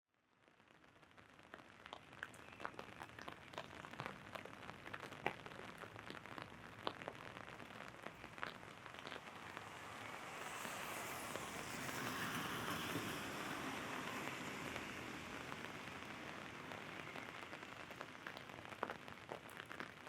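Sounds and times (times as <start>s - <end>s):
rain drops ticking on umbrella: 0.2s - 20.0s
steady hiss of rain: 0.2s - 20.0s.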